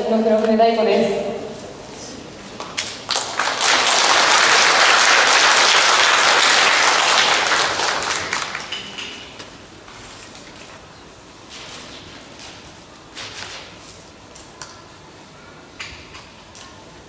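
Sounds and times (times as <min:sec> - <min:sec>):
audience applauding: 0:03.0 - 0:08.8.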